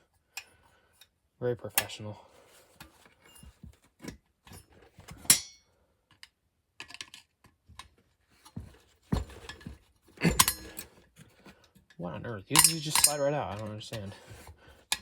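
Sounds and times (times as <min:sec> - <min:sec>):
small metal parts clinking: 0:10.3 - 0:10.8, 0:12.5 - 0:14.0.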